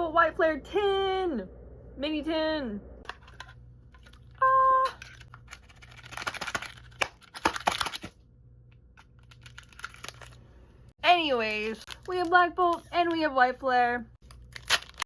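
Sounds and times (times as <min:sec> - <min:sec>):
plastic packaging crinkling: 0:05.0 - 0:08.2, 0:09.0 - 0:10.4, 0:11.5 - 0:12.4, 0:14.2 - 0:15.0.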